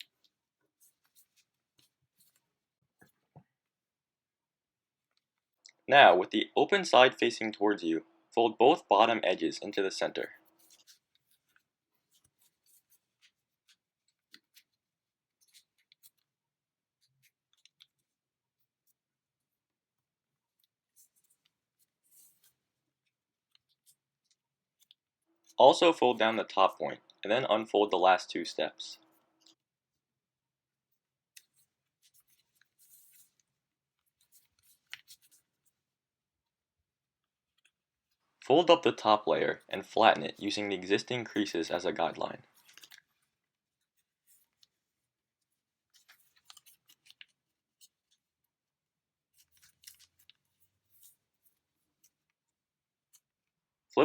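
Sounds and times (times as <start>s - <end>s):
paper being folded and creased: 0.0s - 2.6s, 9.4s - 25.6s, 30.8s - 36.0s, 41.3s - 48.5s, 49.2s - 53.5s.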